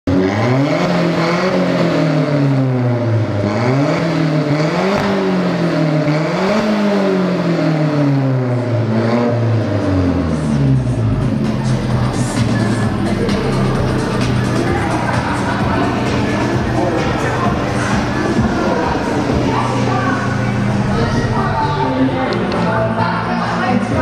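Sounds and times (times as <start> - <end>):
car engine revving: 0.1 - 24.0.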